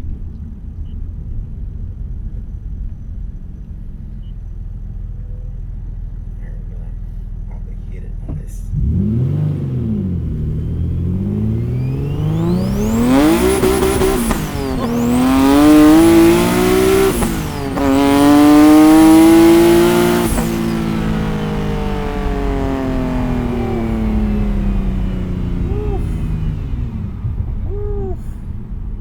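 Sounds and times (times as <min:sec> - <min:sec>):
car engine accelerating: 0:08.3 - 0:29.0
tyres spinning: 0:09.7 - 0:29.0.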